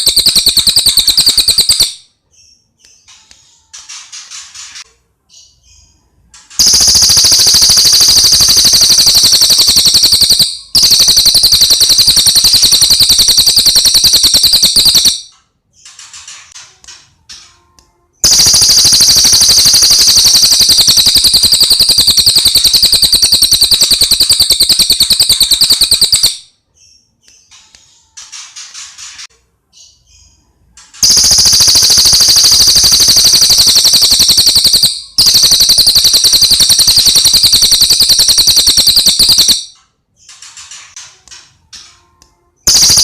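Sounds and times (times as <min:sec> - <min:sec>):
songbird rattling trills: 0:06.6 - 0:15.2, 0:18.2 - 0:26.4, 0:31.0 - 0:39.6.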